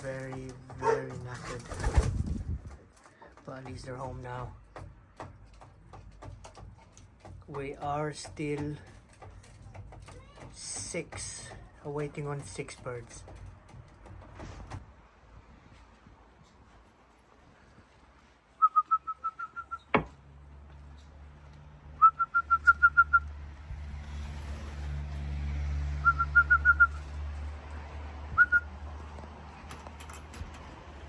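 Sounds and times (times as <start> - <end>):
person whistling short notes: 18.6 - 19.9, 22.0 - 23.2, 26.0 - 27.0.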